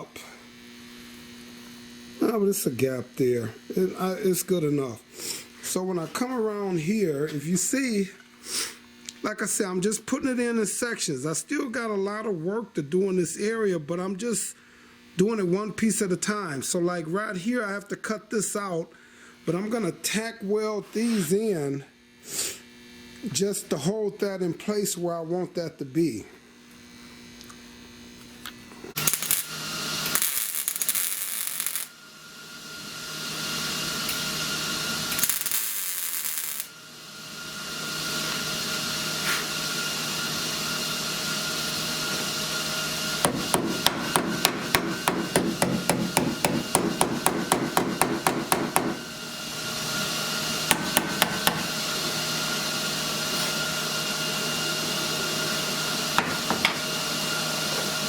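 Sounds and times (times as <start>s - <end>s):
tack welding crackle: 29.0s - 31.9s, 35.1s - 36.7s
electrical hum: 42.8s - 52.4s
sharp metal strikes: 43.3s - 49.1s, 50.7s - 51.9s.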